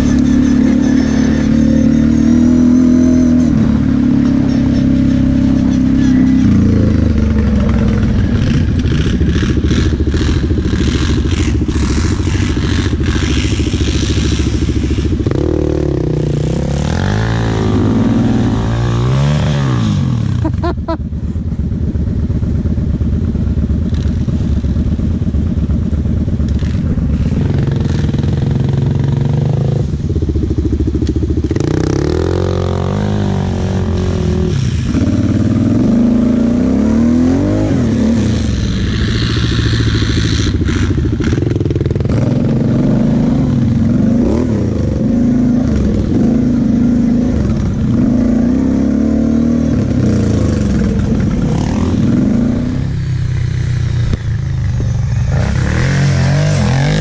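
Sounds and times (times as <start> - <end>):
quad bike engine revving: 0.0 - 21.0, 23.5 - 57.0.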